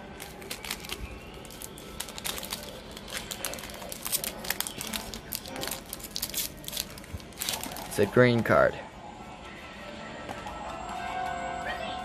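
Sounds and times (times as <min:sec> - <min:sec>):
foil wrapper crinkling: 0:00.1 - 0:08.1.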